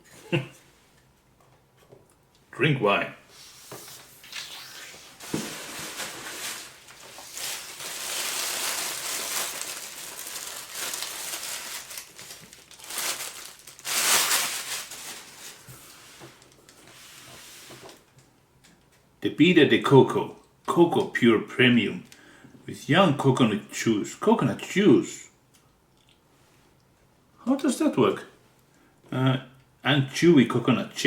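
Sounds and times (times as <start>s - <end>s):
gift wrap crinkling: 4.2s - 16.8s.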